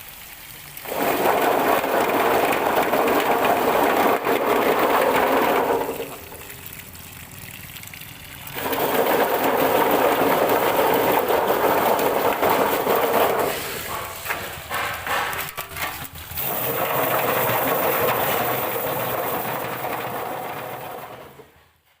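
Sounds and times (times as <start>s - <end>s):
water gushing and splashing: 0.0s - 21.6s
washing machine running: 0.0s - 22.0s.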